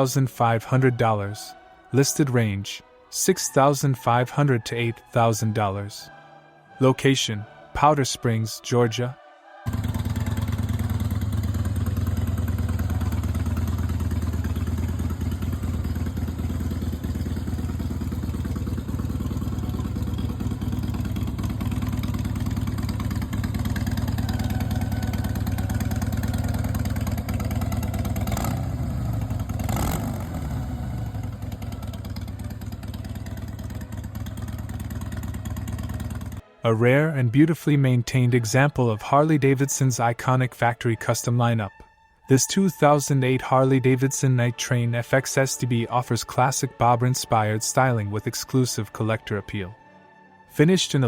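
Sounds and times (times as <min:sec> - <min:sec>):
motorcycle engine idling: 0:09.7 - 0:36.4
motorcycle throttle blips: 0:09.7 - 0:36.4.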